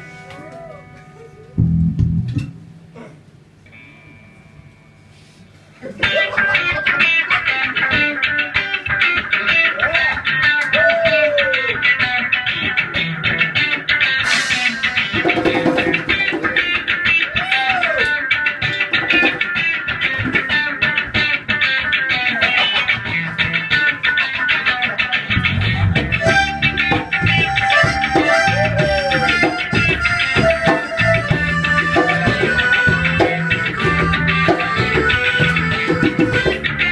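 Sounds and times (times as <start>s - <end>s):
quickly picked guitar notes: 0.0s - 3.0s, 18.2s - 36.9s.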